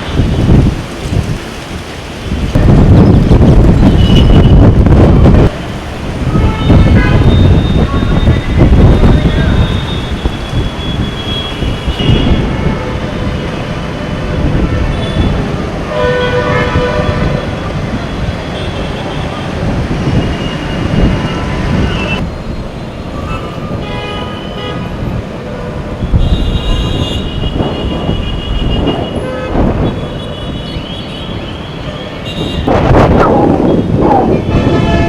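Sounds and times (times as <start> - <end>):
road traffic rumble: 0.0 - 35.0
strong wind: 0.0 - 35.0
vehicle horns: 3.8 - 4.7, 6.3 - 13.1, 14.6 - 22.2, 23.3 - 25.1, 25.7 - 33.0, 33.7 - 35.0.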